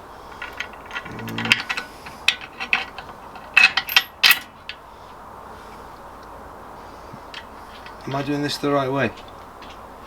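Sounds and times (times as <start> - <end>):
metal parts and tools clinking: 0.3 - 4.8.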